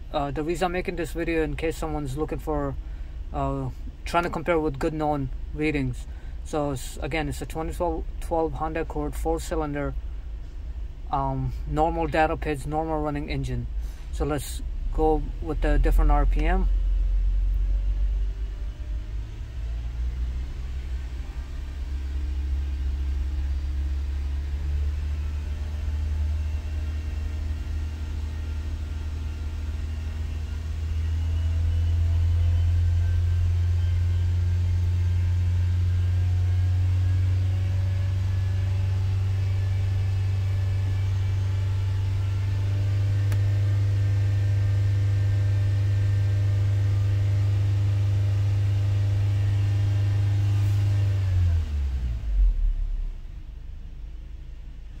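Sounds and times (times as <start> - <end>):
car engine revving steadily: 0.0 - 55.0.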